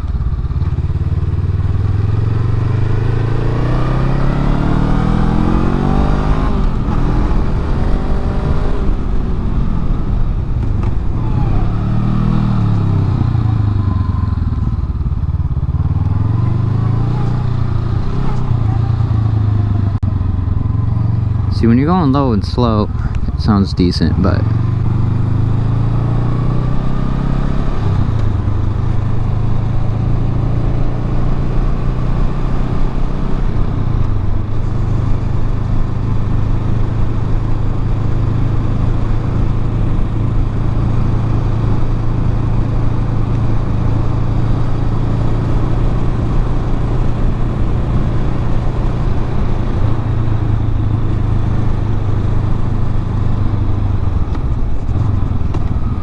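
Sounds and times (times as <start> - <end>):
motorcycle engine droning: 0.0 - 56.0.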